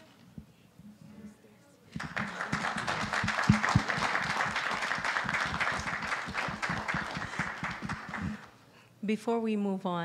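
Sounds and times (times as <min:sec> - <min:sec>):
crowd applauding: 0:02.0 - 0:08.6.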